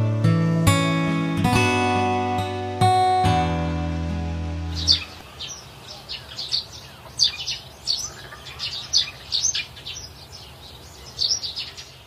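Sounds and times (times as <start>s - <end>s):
birds chirping: 4.5s - 12.0s.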